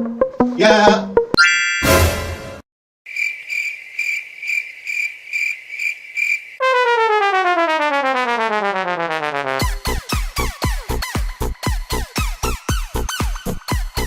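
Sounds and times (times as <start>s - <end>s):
crickets chirping: 3.1s - 6.6s
falling fail tone: 6.6s - 9.6s.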